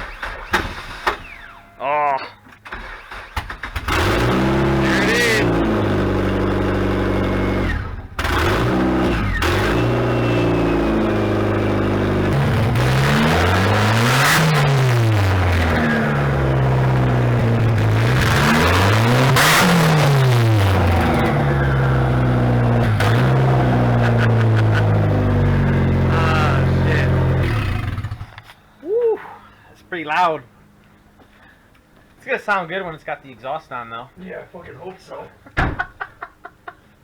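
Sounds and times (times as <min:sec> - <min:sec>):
loud car engine revving and idling: 0:03.7 - 0:28.4.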